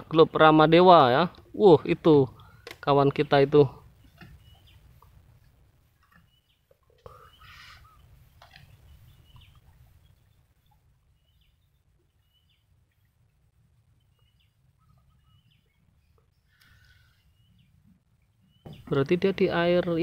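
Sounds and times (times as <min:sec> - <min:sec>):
faint short bird calls: 0:06.2 - 0:09.8.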